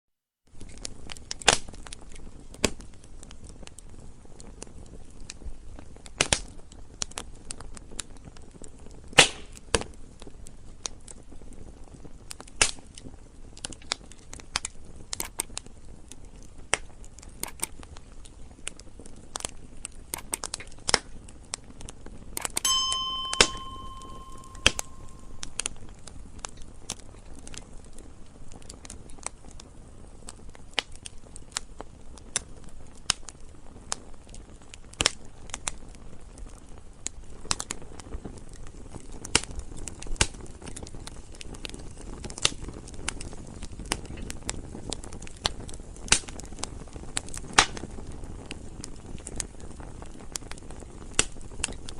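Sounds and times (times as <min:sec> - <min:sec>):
wood fire crackling: 0:00.5 - 0:51.9
brief ringing tone: 0:22.6 - 0:25.6.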